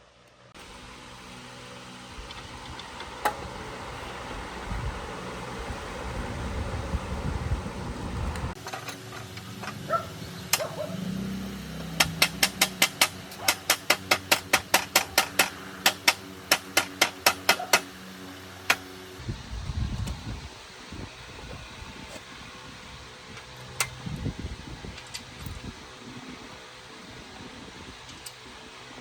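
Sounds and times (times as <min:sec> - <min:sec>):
low rumbling noise: 0:00.5 - 0:08.6, 0:19.2 - 0:29.0.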